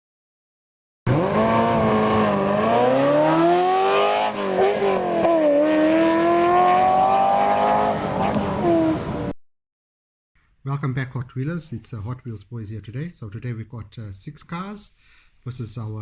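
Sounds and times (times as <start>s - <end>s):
car engine revving: 1.1s - 9.3s.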